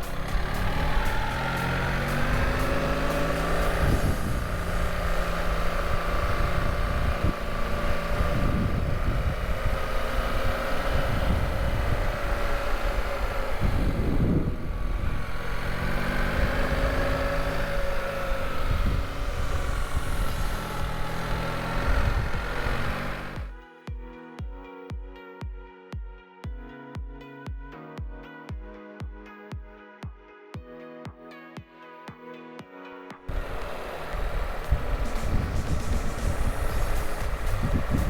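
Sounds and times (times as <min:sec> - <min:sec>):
motorcycle engine running: 0:00.0 - 0:23.6, 0:33.3 - 0:38.0
wind buffeting microphone: 0:00.0 - 0:23.6, 0:33.3 - 0:38.0.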